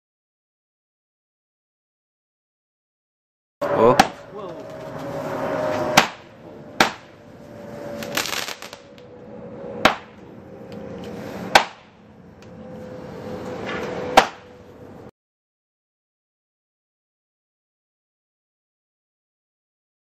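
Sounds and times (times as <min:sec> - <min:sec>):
fireworks hissing rush: 0:07.9 - 0:08.9
fireworks bangs: 0:08.0 - 0:08.9.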